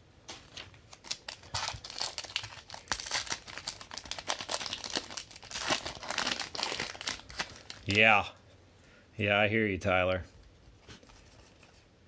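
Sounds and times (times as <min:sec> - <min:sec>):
foil wrapper tearing and crinkling: 0:00.9 - 0:08.1.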